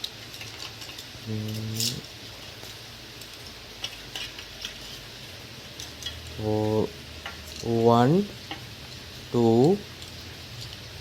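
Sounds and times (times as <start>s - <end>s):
person humming: 1.2s - 2.0s, 6.4s - 6.9s.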